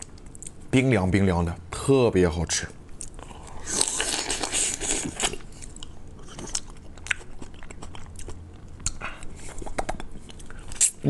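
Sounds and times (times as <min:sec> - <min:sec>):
chewing crunches and clicks: 0:02.9 - 0:11.0.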